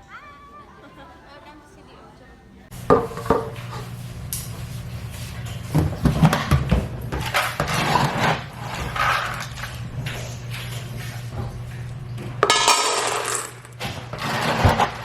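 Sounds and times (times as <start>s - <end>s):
steady low hum: 2.7s - 15.0s
knocks and clattering handling: 5.4s - 15.0s.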